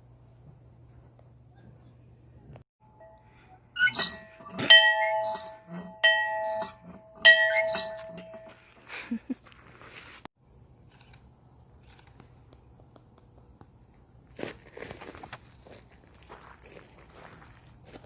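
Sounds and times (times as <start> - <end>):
metallic clanks with ringing tone: 2.9 - 8.6.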